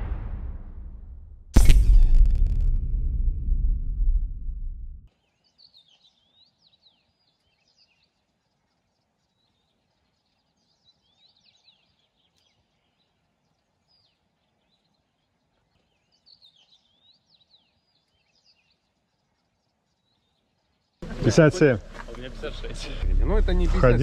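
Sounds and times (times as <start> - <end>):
faint high birdsong: 5.1 - 22.9.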